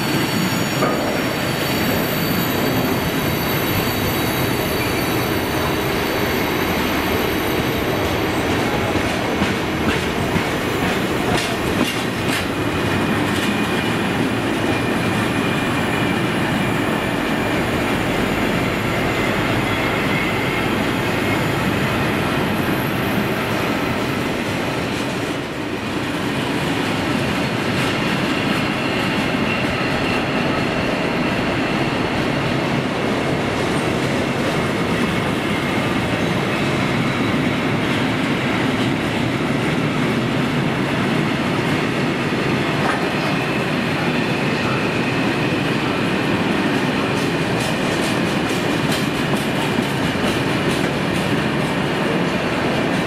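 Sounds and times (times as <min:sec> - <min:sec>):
faint wheel squeal: 0:00.0 - 0:07.9.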